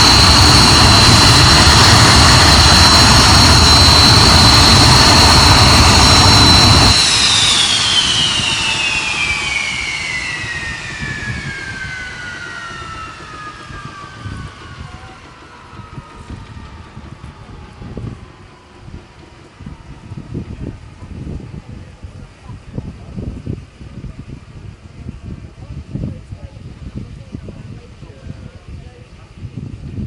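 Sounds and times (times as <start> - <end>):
jet engine rushing noise: 0.0 - 21.6
jet engine whine: 0.0 - 30.0.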